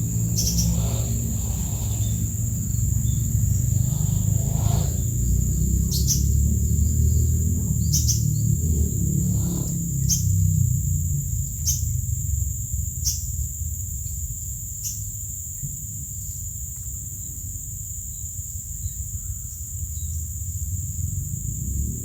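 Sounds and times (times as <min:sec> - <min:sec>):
downward-sliding bird calls: 0:00.0 - 0:10.3
low rumble: 0:00.0 - 0:12.9, 0:20.6 - 0:22.0
insects droning: 0:00.0 - 0:22.0.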